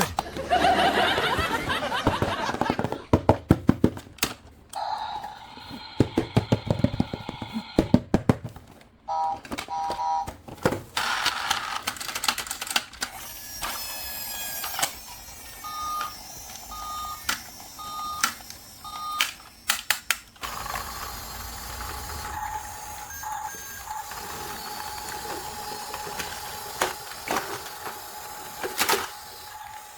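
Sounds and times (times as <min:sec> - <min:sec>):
plastic toys clicking and knocking: 0:02.0 - 0:04.8, 0:06.0 - 0:15.2, 0:15.8 - 0:22.4, 0:24.1 - 0:29.9
electronic tones: 0:22.2 - 0:26.3.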